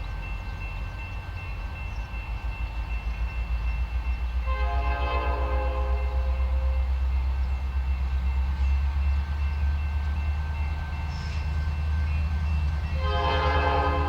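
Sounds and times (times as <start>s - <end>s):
diesel locomotive rumbling past: 0.0s - 14.0s
locomotive air horn: 4.5s - 6.8s, 13.0s - 14.0s.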